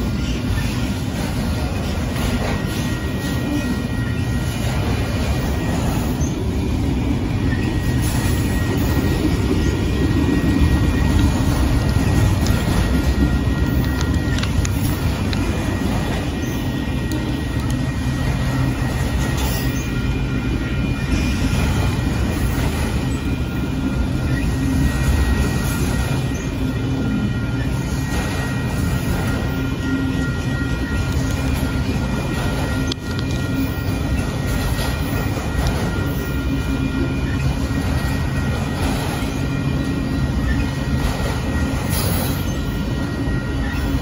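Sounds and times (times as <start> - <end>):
freight train wheels rumbling: 0.0 - 44.0.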